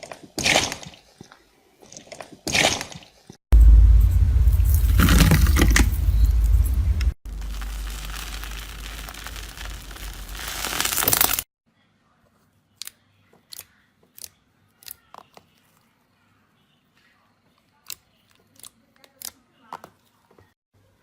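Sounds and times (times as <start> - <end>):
slime squeezed crackling: 7.3 - 11.4.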